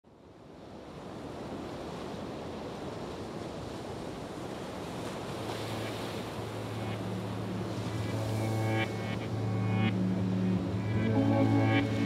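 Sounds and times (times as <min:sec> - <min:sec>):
low steady hum: 0:06.3 - 0:12.0.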